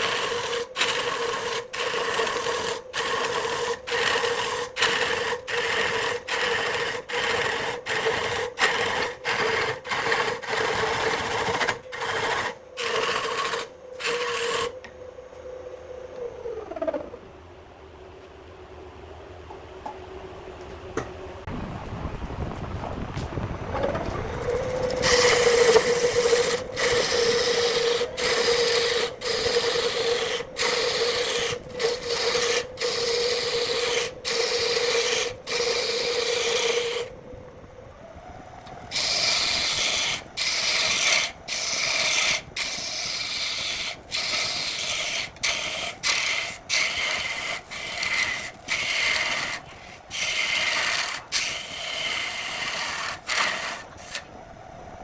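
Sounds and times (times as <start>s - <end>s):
tool rasping against spinning wood: 0.0s - 14.9s, 24.4s - 37.2s, 38.8s - 54.3s
wood lathe humming: 0.0s - 14.9s, 24.4s - 37.2s, 38.6s - 54.3s.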